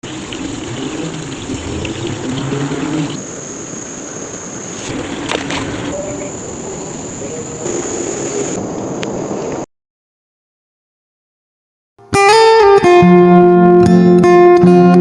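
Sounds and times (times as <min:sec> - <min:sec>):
flowing river water: 0:00.0 - 0:09.5
high-pitched insect trill: 0:02.6 - 0:08.4.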